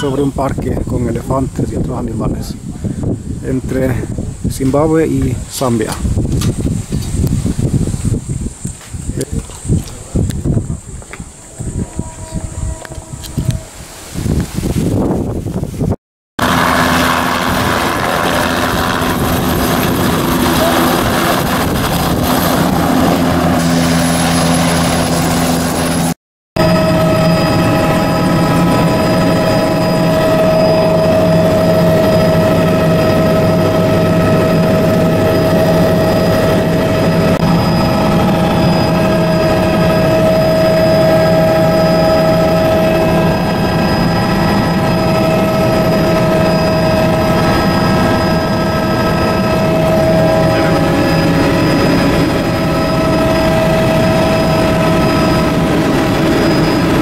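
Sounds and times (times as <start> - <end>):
constant whine: 0.0 - 57.0
helicopter engine and rotor: 16.4 - 57.0.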